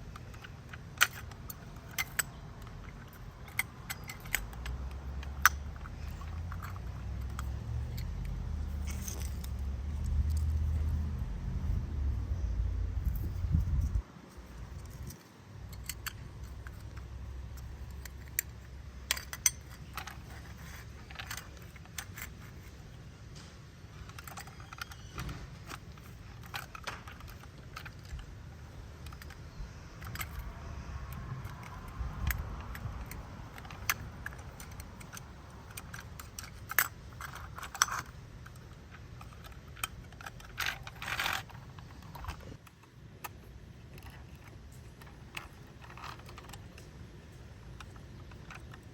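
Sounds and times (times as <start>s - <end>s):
plastic toy clicks and clatter: 0.0s - 11.2s, 14.8s - 22.9s, 24.0s - 48.9s
scraping rattle: 0.0s - 14.0s, 14.6s - 42.6s, 43.9s - 48.9s
low rumble: 6.1s - 14.0s.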